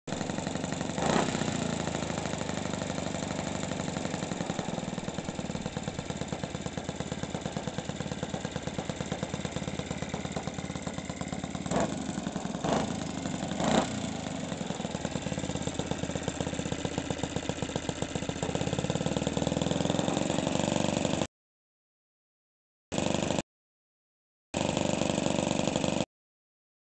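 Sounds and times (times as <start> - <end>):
model airplane engine running: 0.2 - 18.7, 24.6 - 26.0.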